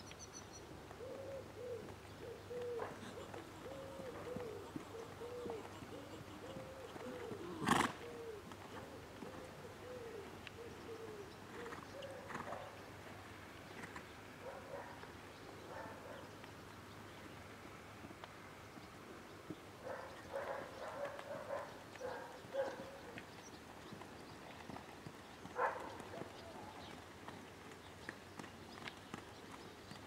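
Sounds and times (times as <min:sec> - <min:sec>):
bird cooing: 0:01.0 - 0:12.7, 0:19.8 - 0:23.1, 0:25.6 - 0:26.9.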